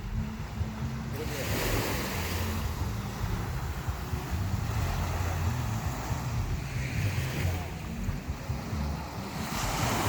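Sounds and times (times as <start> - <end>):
ocean waves washing ashore: 0.0 - 10.0.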